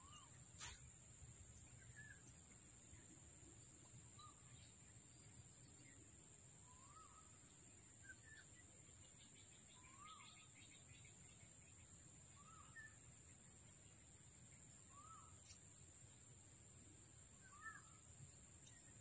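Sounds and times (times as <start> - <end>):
bird chirps: 0.0 - 0.9, 8.0 - 11.8
high-pitched hiss: 0.0 - 6.2.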